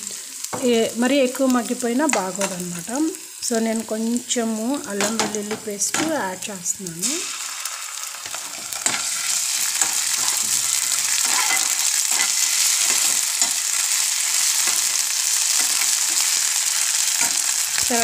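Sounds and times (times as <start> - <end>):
onions sizzling in hot oil: 0.0 - 18.0
metal spoon scraping pan: 8.3 - 13.8.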